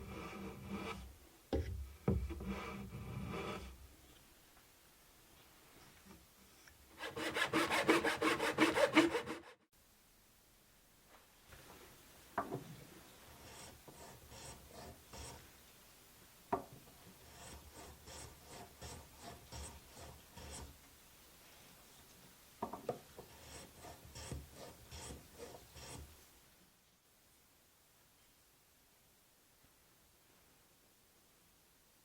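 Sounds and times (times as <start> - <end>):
hand tool rubbing on wood: 7.0 - 9.5, 13.3 - 15.4, 17.2 - 20.7, 23.2 - 26.1.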